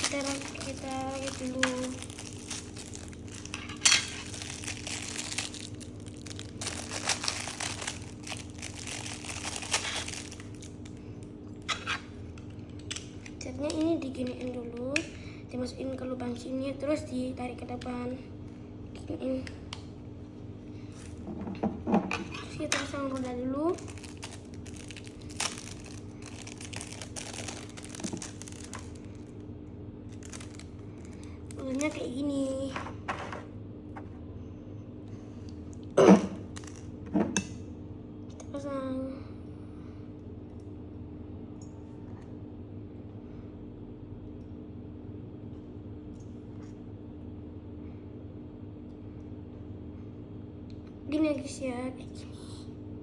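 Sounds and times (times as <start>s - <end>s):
packaging crinkling and rustling: 0.0s - 11.0s, 22.3s - 29.4s, 30.1s - 32.2s, 36.4s - 36.9s.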